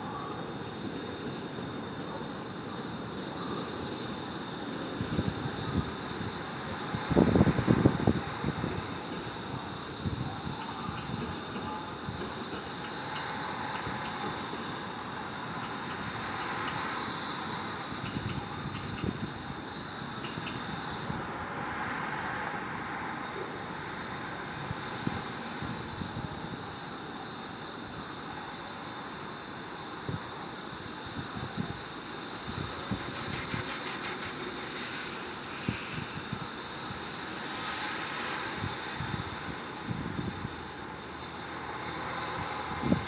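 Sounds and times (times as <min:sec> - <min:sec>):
city traffic rumble: 0:31.4 - 0:43.0.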